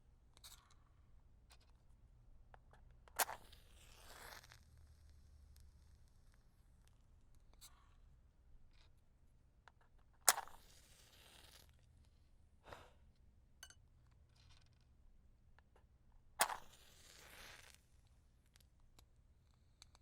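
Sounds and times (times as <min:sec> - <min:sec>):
match striking and hissing: 0:03.2 - 0:04.6, 0:10.3 - 0:11.8, 0:16.4 - 0:17.8.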